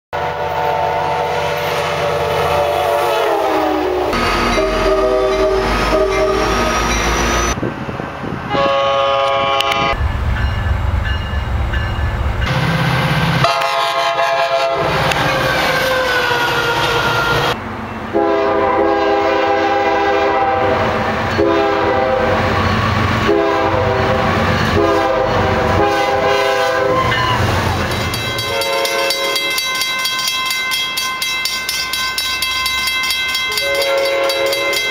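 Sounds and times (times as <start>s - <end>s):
train air horn chords: 0.2s - 6.9s, 8.5s - 10.0s, 13.4s - 22.5s, 23.2s - 27.5s, 28.4s - 29.6s, 33.5s - 34.9s
train rumble: 0.2s - 34.9s.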